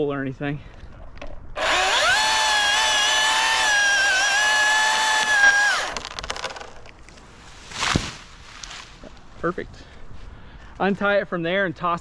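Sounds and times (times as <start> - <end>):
cordless chainsaw whining: 1.6 - 6.4.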